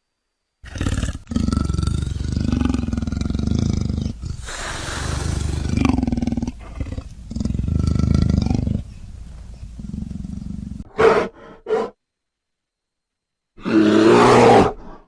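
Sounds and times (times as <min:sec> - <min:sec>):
animal roaring: 0:00.6 - 0:10.9
breathy rush of air: 0:01.9 - 0:10.8.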